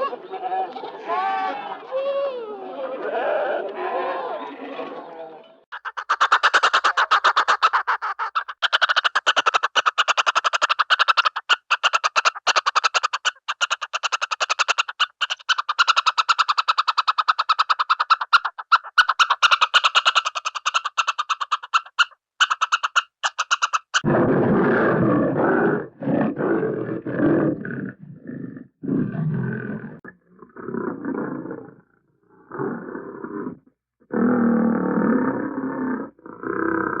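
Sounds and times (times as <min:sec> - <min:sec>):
rapid clicking pulses: 0:05.7 - 0:24.1
big cat roaring: 0:24.0 - 0:37.0.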